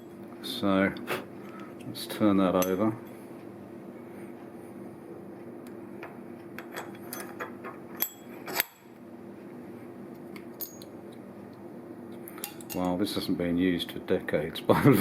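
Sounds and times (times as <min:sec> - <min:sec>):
steady low hum: 0:00.0 - 0:15.0
metallic clinks of steel tools: 0:10.6 - 0:10.9.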